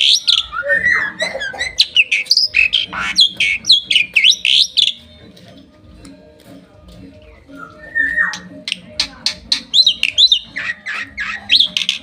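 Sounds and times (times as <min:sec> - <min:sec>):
starling singing whistles and chirps: 0:00.0 - 0:05.1, 0:07.5 - 0:08.5, 0:09.5 - 0:12.0.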